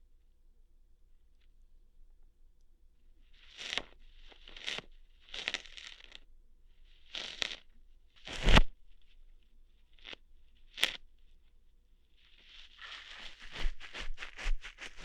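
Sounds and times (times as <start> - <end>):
ear hair plucking pulls: 3.4 - 6.2, 7.0 - 7.6, 8.2 - 9.0, 10.0 - 11.0, 12.4 - 15.0.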